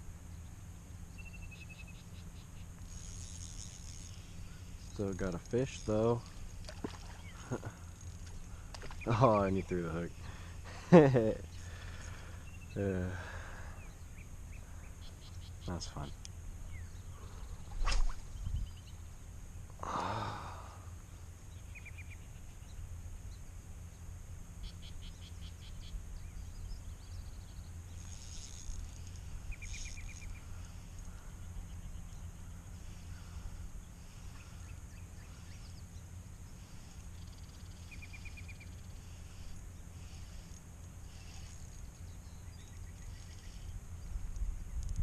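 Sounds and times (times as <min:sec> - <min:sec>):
wind: 0:00.0 - 0:45.0
small bird trilling: 0:29.5 - 0:30.4.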